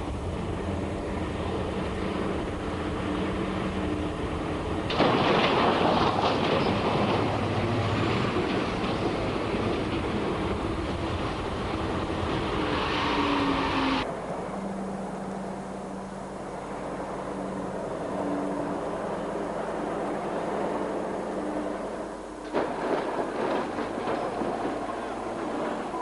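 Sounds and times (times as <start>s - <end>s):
harsh rumble and clatter: 0.0s - 13.2s, 18.8s - 26.0s
truck engine drone: 0.0s - 26.0s.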